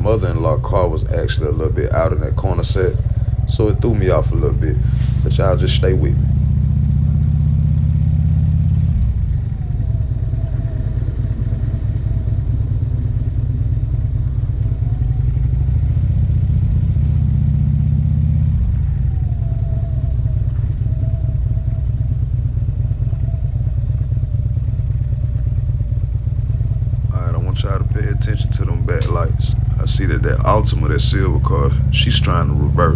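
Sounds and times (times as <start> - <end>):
motorcycle engine rumbling: 0.0 - 6.6, 18.6 - 32.9.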